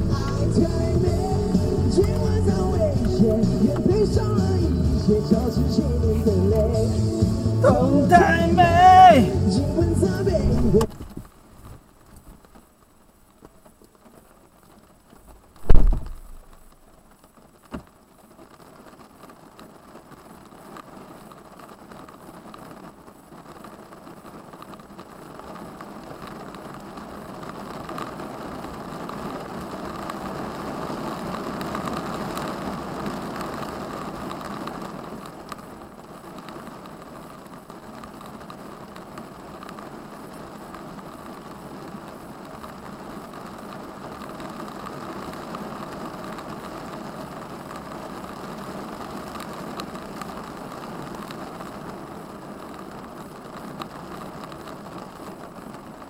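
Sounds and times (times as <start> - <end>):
vehicle engine rumble: 0.0 - 8.1, 10.0 - 11.3
road noise: 0.0 - 11.2.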